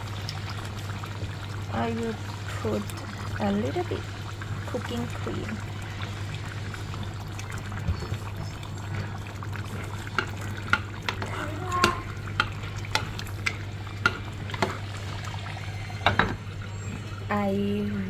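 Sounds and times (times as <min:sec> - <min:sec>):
spoon scraping a pan: 0:09.7 - 0:17.0.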